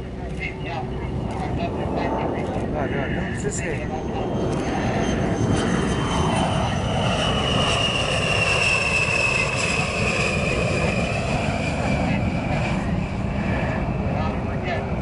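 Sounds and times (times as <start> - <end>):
high-pitched jet whine: 0.0 - 15.0
jet engine rumble: 0.0 - 15.0.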